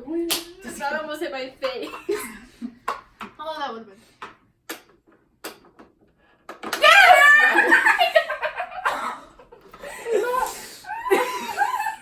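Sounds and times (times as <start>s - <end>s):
people laughing and giggling: 7.2s - 12.0s.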